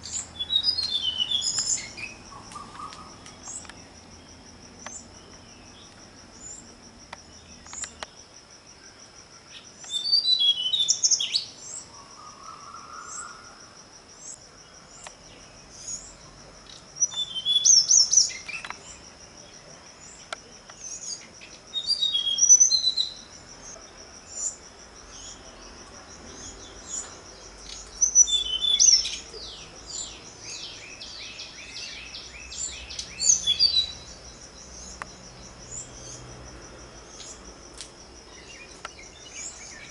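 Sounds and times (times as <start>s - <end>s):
birds chirping: 0.0s - 13.6s, 14.2s - 36.4s, 37.0s - 37.5s, 38.2s - 39.9s
high-pitched insect trill: 0.0s - 39.9s.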